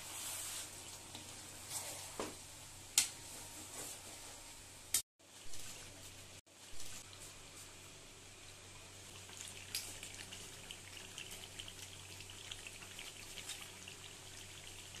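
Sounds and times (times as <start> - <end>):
curry sizzling and popping: 4.9 - 15.0.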